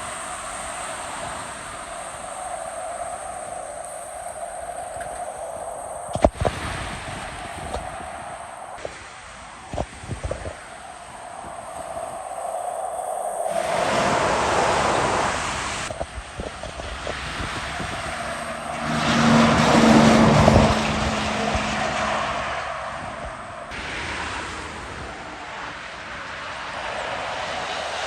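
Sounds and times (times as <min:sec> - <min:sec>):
vehicles driving past: 0:13.5 - 0:28.0
heavy truck passing: 0:13.6 - 0:28.0.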